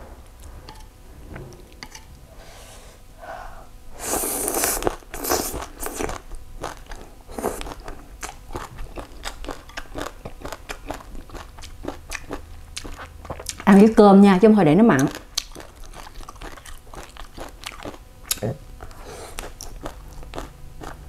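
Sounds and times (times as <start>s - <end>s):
slurping: 4.0s - 6.1s
crunchy chewing: 4.4s - 13.6s, 15.0s - 21.0s.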